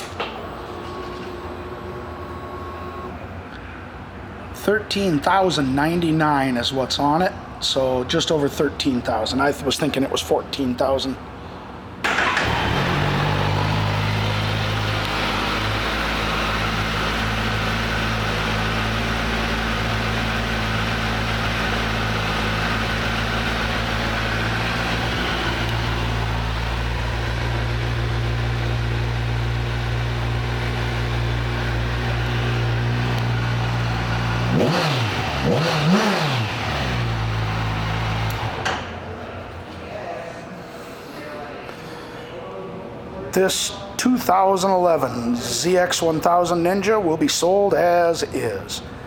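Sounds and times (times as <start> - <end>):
motorcycle engine idling: 12.1 - 38.6
motorcycle engine revving: 12.1 - 38.6.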